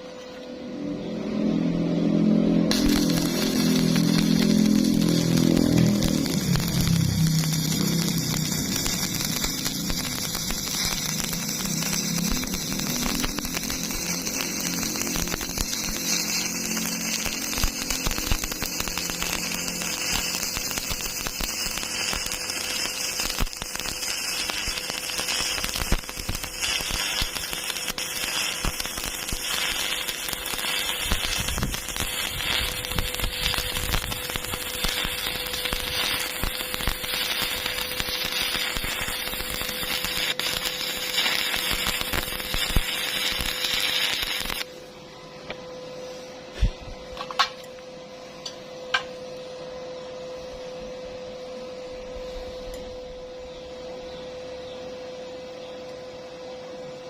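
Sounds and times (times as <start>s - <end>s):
welding arc crackling: 2.6s - 44.7s.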